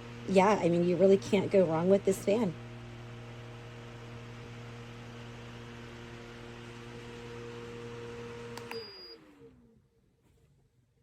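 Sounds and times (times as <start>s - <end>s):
fan running: 0.0s - 10.8s
fan switch click: 8.5s - 8.9s.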